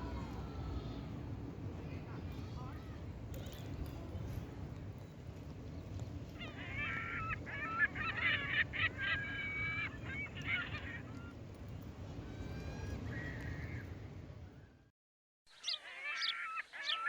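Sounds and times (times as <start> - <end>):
low background rumble: 0.0 - 14.9
geese honking: 6.4 - 11.4.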